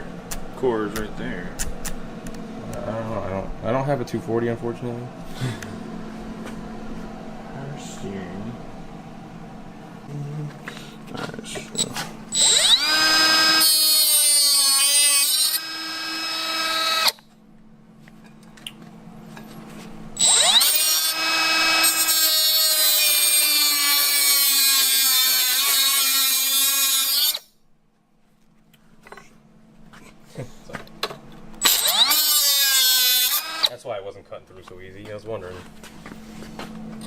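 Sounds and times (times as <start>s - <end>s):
power tool cutting sheet metal: 12.3s - 17.2s, 20.2s - 27.5s, 31.6s - 33.7s.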